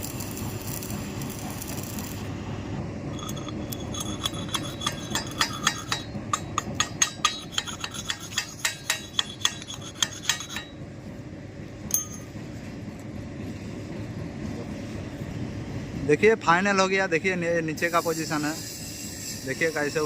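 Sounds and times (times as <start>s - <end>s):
chipping hammer tapping metal: 3.2s - 10.8s.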